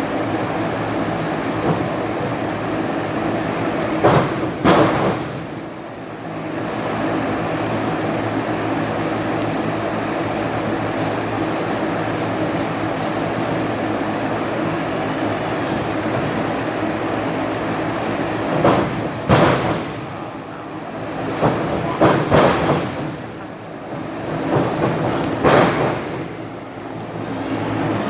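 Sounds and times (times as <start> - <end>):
bodies hitting wrestling ring: 21.4 - 23.3.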